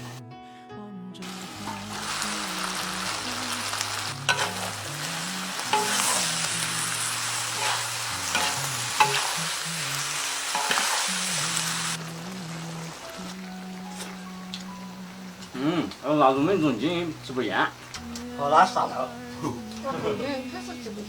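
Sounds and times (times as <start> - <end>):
food sizzling in a pan: 1.2 - 21.0
spatula scraping a pan: 4.3 - 4.7.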